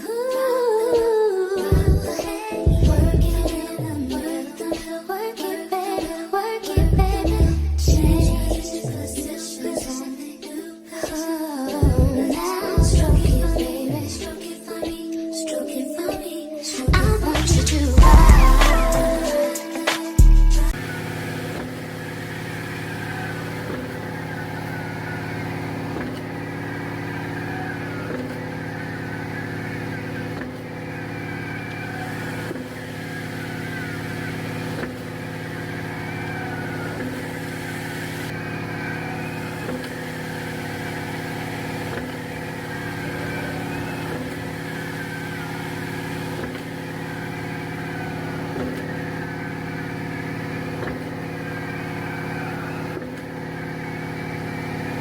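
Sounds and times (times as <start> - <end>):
diesel engine running: 1.7 - 4.2, 6.8 - 9.2, 20.2 - 55.0.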